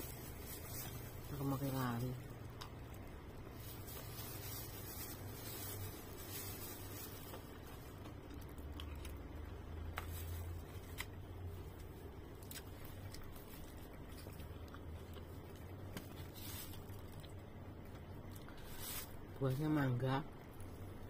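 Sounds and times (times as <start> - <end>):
low steady hum: 0.0 - 21.0
person chewing food: 7.1 - 18.7.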